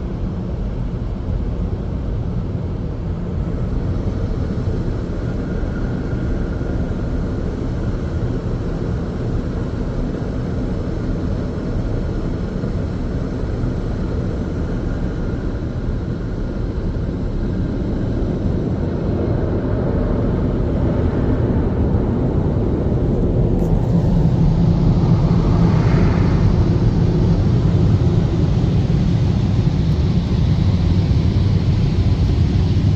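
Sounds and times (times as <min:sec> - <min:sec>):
car wash blower dryers running: 0:14.7 - 0:32.9.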